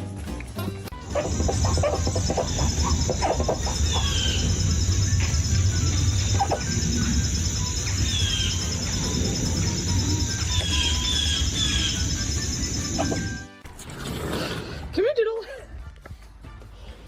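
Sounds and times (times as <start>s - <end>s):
steady low rumble: 1.0s - 13.3s
bird chirps: 1.0s - 13.5s
steady high hiss: 2.7s - 13.0s.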